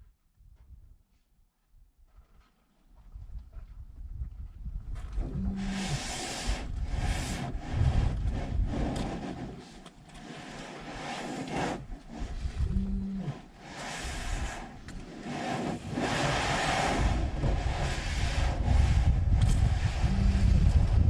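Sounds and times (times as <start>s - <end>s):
elephant hide scraping vehicle: 5.4s - 21.0s.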